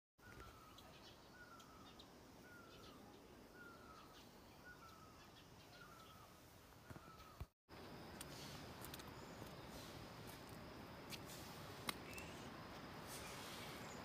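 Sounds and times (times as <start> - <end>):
faint high bird chirps: 0.2 - 7.5, 11.9 - 12.5.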